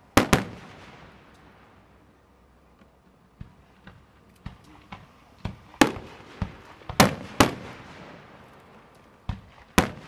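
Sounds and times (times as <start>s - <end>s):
firework shells booming: 0.1s - 1.7s, 3.4s - 8.4s, 9.2s - 10.0s.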